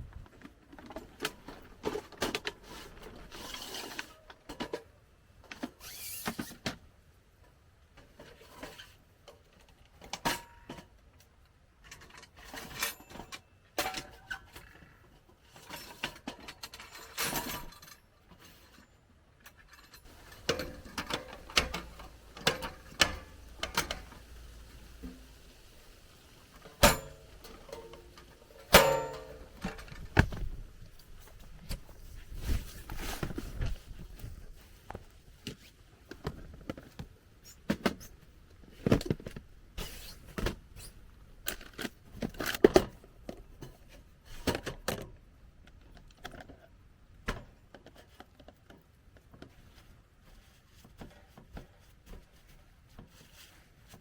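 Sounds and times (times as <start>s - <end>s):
objects clicking and knocking: 19.5s - 30.6s
rustling: 20.0s - 37.0s.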